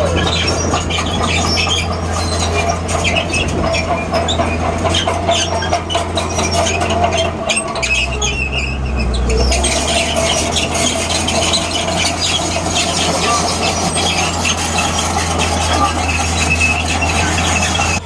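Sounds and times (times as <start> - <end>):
bulldozer diesel engine drone: 0.0 - 18.0
steel tracks squealing and clanking: 0.0 - 18.0.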